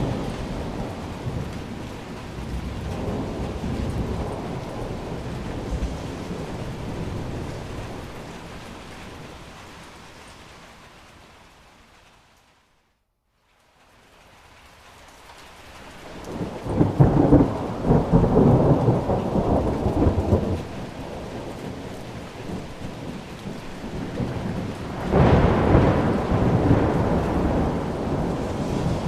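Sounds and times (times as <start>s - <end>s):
thunder rumbling: 0.0s - 10.0s, 16.1s - 29.0s
steady rain: 0.0s - 29.0s.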